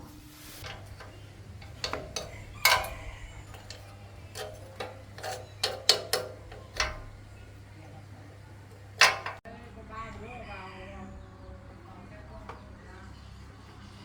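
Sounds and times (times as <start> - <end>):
steady low hum: 0.0 - 14.0
metal tools clinking: 0.6 - 9.4.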